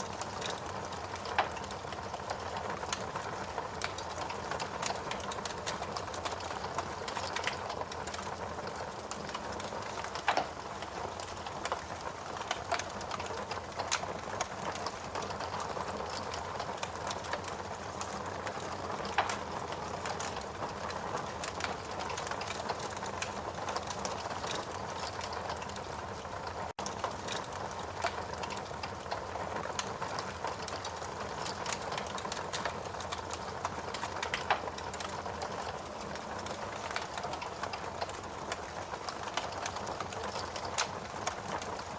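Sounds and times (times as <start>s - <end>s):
fire crackling and popping: 0.0s - 41.9s.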